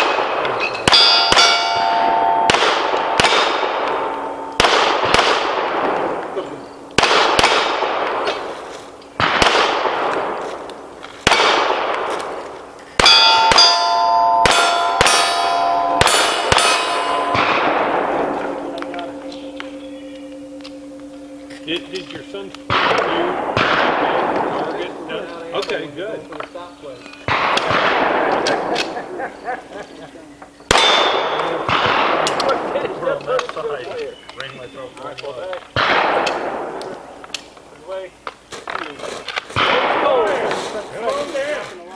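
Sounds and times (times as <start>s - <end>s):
steel targets clanging: 0.0s - 6.6s, 12.1s - 32.8s
pistol shots: 0.0s - 19.6s, 27.2s - 29.4s, 30.7s - 32.9s, 35.7s - 37.5s, 39.6s - 40.5s.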